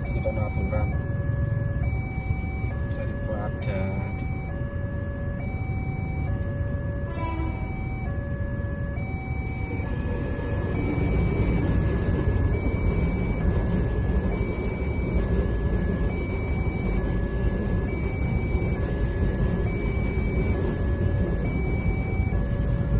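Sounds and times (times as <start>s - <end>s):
level crossing two-note alarm: 0.0s - 22.9s
passing train rumble: 0.0s - 22.9s.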